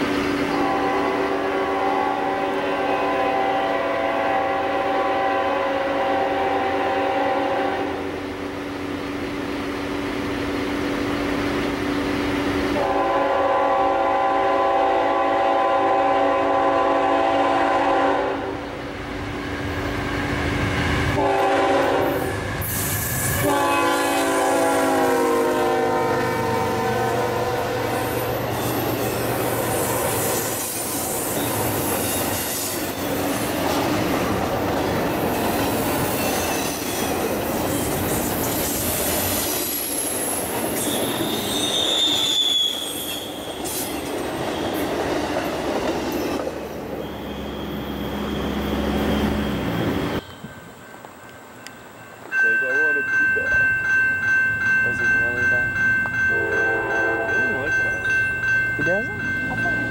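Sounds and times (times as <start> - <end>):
train wheels rumbling on rails: 0.0 - 59.9
train air horn blasts: 0.5 - 8.2, 12.8 - 18.7, 21.1 - 28.3, 29.4 - 32.9, 56.3 - 57.6.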